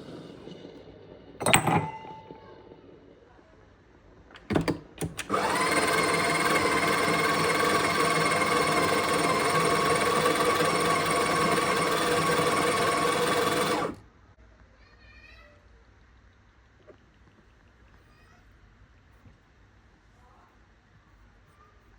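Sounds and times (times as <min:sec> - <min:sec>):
grinder clicks: 0:04.4 - 0:14.0
coffee grinder whirring: 0:05.0 - 0:14.0.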